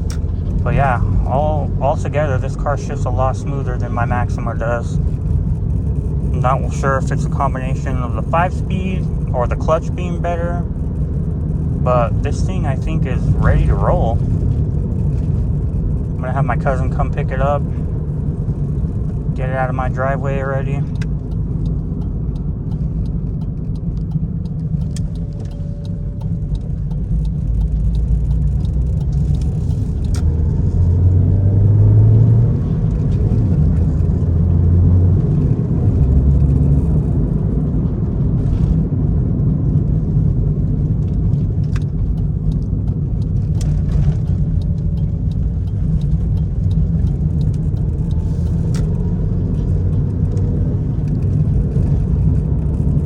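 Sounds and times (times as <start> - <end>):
car engine accelerating: 0.0 - 53.0
low rumble of road noise: 0.0 - 53.0.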